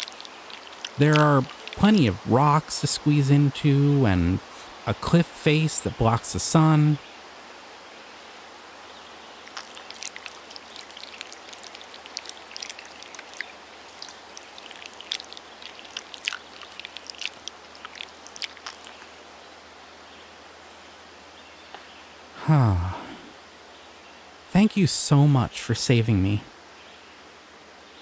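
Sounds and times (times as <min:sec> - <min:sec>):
running water: 0:00.0 - 0:07.2, 0:08.9 - 0:19.7.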